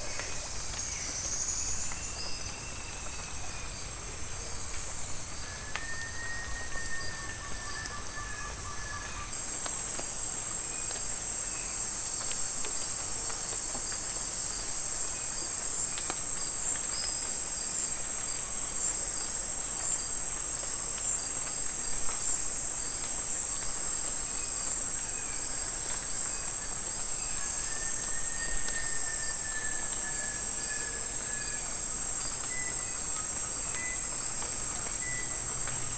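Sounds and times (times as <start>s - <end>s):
faint whistled call: 0.0s - 9.4s, 25.9s - 35.9s
rainforest insects chorus: 0.0s - 35.9s.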